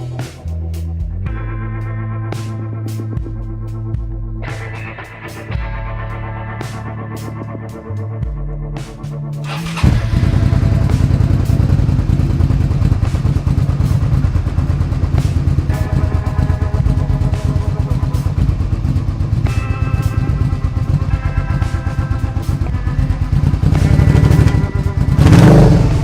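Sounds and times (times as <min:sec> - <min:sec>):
motorcycle engine idling: 0:09.6 - 0:26.0.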